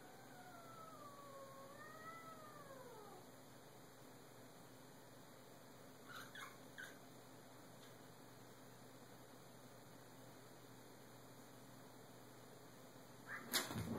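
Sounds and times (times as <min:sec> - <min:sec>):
cat squeaky mews: 0:06.1 - 0:07.0.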